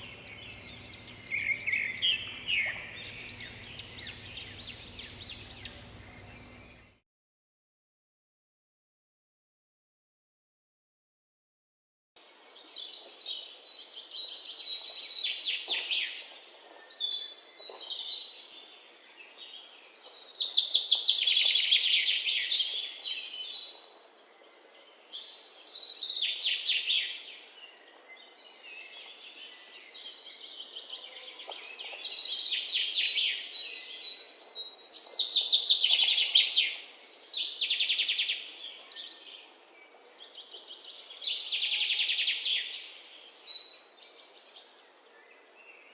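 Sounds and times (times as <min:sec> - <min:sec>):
songbirds chirping trills: 0:00.0 - 0:07.0.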